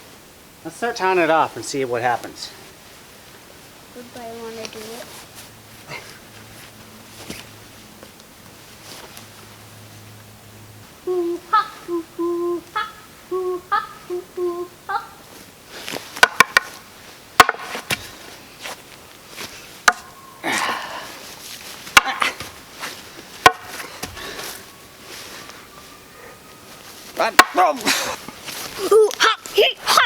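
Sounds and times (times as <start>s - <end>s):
person humming: 11.0s - 15.2s.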